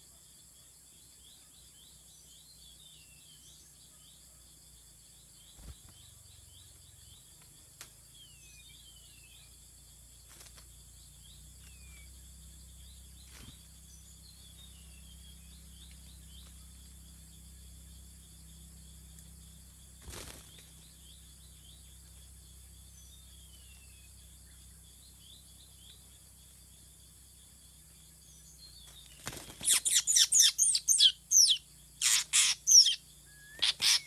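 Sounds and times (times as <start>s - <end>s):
insects chirring: 0.0s - 34.0s
falling bird chirps: 28.7s - 34.0s.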